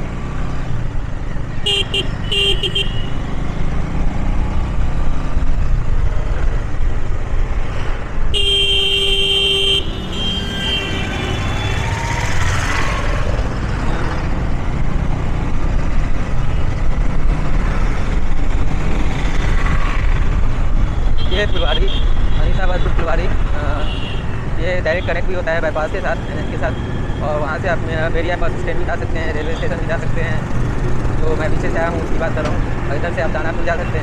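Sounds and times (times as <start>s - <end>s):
road traffic rumble: 0.0s - 34.0s
vehicle horn honking: 1.6s - 3.1s, 8.3s - 11.8s.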